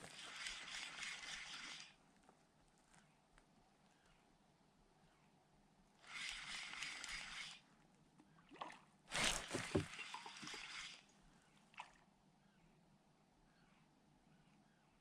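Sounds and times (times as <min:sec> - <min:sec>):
water sloshing: 0:08.5 - 0:11.0.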